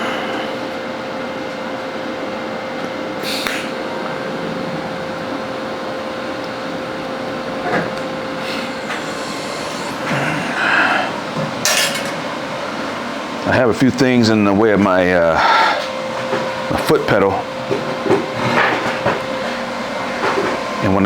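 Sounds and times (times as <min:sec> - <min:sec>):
welding arc hissing: 0:08.2 - 0:12.8.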